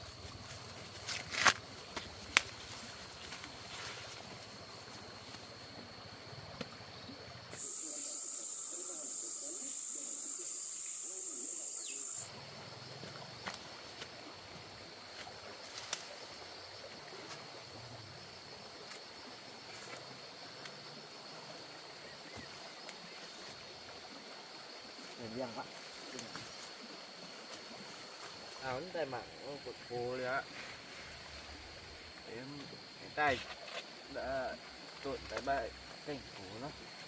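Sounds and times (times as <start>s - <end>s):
insect buzzing: 0.0s - 37.0s
faint high whine: 7.0s - 12.3s.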